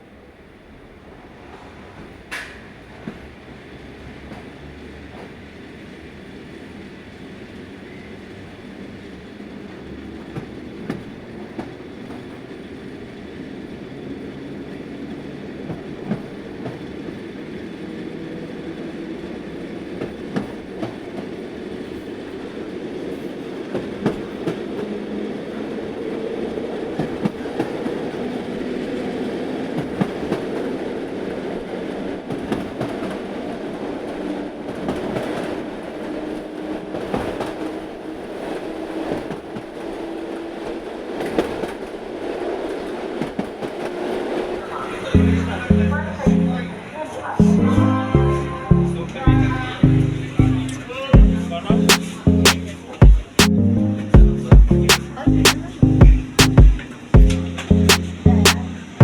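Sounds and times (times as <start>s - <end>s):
train rumble: 0.0s - 59.0s
train wheels clicking over rail joints: 1.3s - 6.5s, 8.4s - 25.2s.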